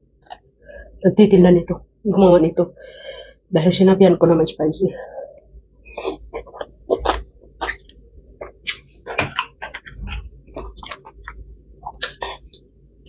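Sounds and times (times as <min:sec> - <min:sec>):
wet chewing and crunches: 0:06.0 - 0:12.6.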